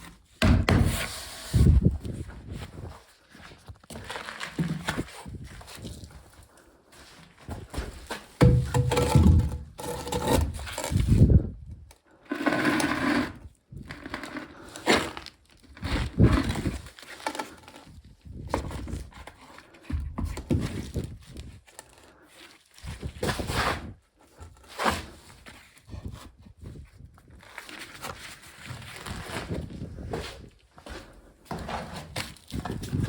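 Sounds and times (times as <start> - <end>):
tools scraping and knocking: 8.4 - 11.0.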